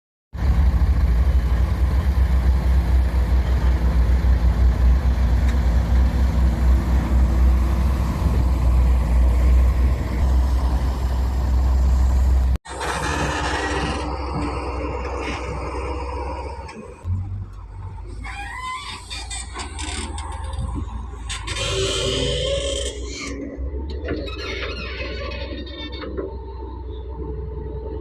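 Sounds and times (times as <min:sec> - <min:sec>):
heavy diesel engine throbbing: 0:00.4 - 0:28.0.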